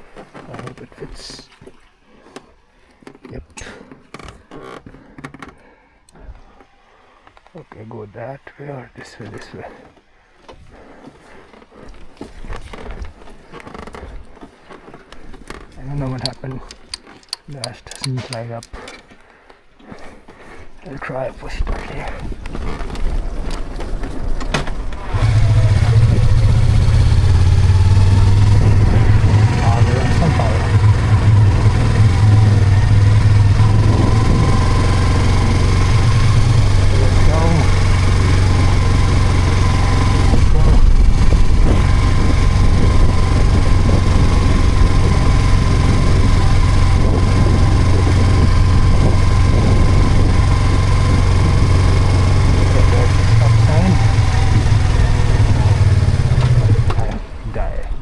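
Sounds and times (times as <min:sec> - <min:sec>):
motorcycle rolling with clicks: 0:00.0 - 0:07.8, 0:09.2 - 0:20.7, 0:21.6 - 0:58.0
motorcycle engine running: 0:15.8 - 0:19.0, 0:23.9 - 0:58.0.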